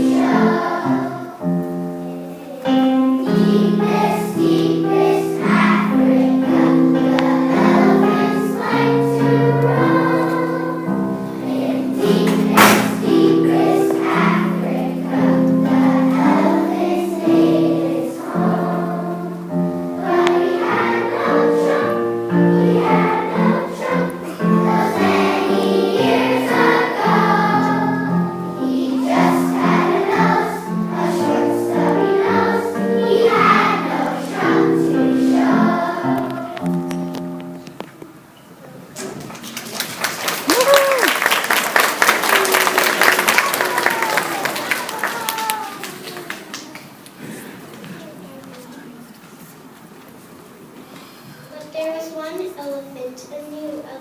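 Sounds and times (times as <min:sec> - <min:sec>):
children's choir singing: 0:00.0 - 0:37.6, 0:41.4 - 0:48.0
sharp knock: 0:12.3 - 0:13.1.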